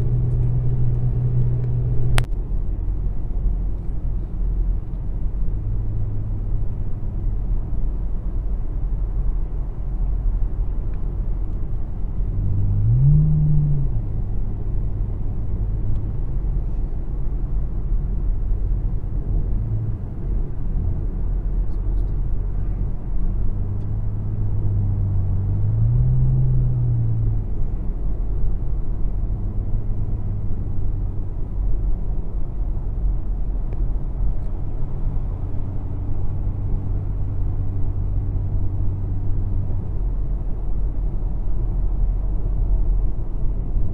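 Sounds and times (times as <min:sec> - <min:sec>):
car engine revving: 0:00.0 - 0:02.3, 0:12.1 - 0:16.8, 0:18.8 - 0:28.3
car engine idling: 0:00.0 - 0:43.9.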